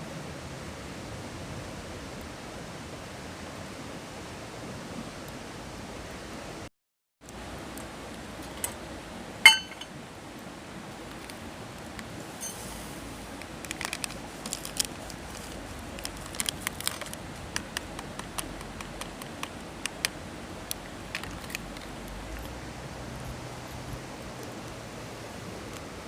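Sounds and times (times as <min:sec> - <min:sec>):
low hiss: 0:07.3 - 0:26.0
campfire crackling and popping: 0:13.4 - 0:22.6.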